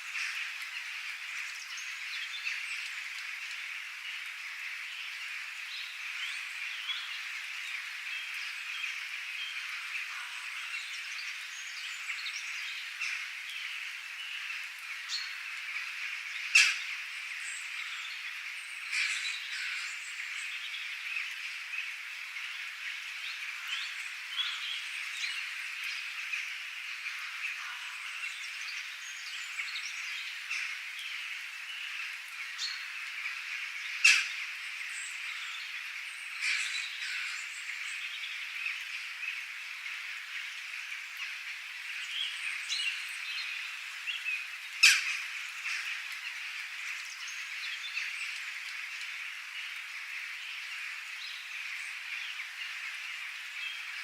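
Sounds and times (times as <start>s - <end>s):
birds chirping: 0.0s - 54.0s
loud sharp bird calls: 14.3s - 39.2s, 42.0s - 48.4s.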